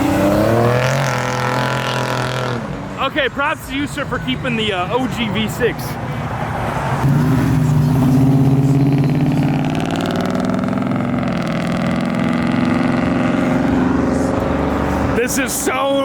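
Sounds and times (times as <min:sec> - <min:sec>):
car engine passing by: 0:00.0 - 0:02.8, 0:06.0 - 0:16.0.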